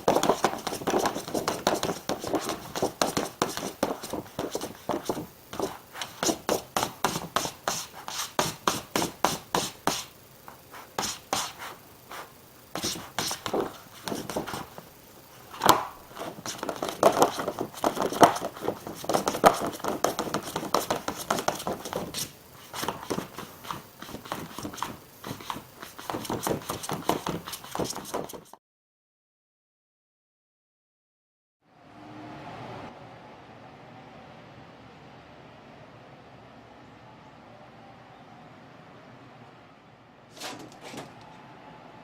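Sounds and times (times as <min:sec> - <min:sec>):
scratching and scraping strokes: 0:00.0 - 0:28.6.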